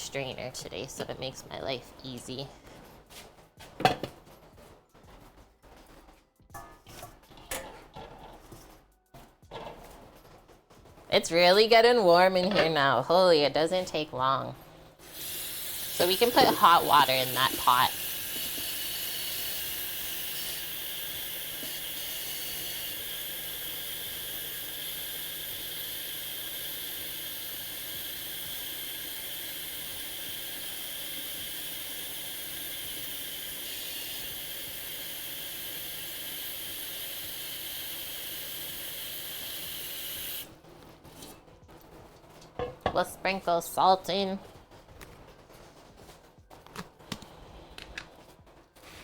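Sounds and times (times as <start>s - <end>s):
tap water filling a pot: 15.1s - 40.5s.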